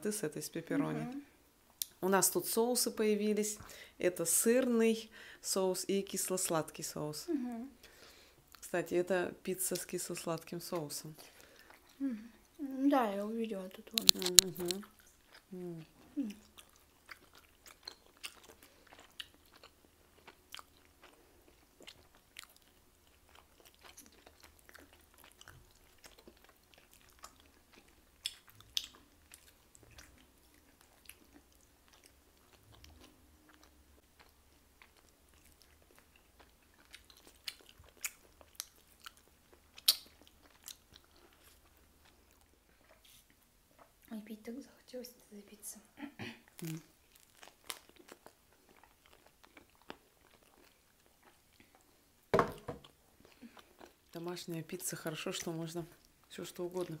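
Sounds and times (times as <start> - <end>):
people chewing pizza: 9.7 - 44.1, 46.0 - 52.2, 52.8 - 57.0
crisp crunches: 14.0 - 14.8.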